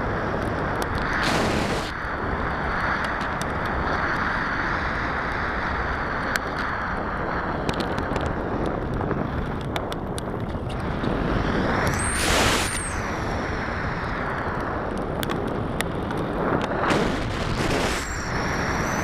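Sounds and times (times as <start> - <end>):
wind rushing over microphone: 0.0 - 19.0
high whistle rising and falling: 11.9 - 13.1.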